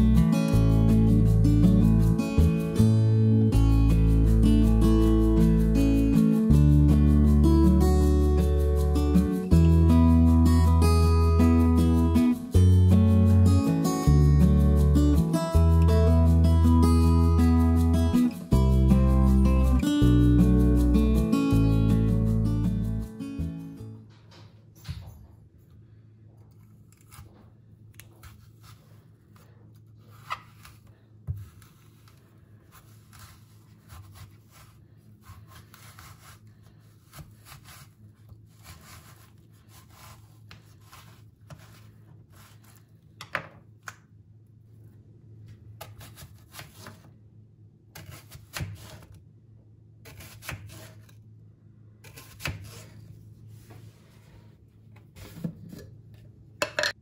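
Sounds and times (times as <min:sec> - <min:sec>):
rubbing and rustling: 0:31.4 - 0:42.9.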